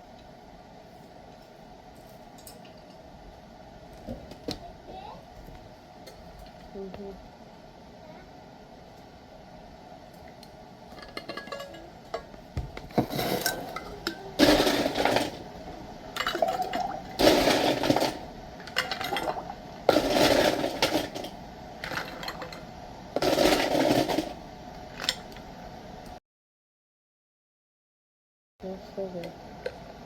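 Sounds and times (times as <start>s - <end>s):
dishes and kitchenware clattering: 10.9s - 12.3s, 12.9s - 15.4s.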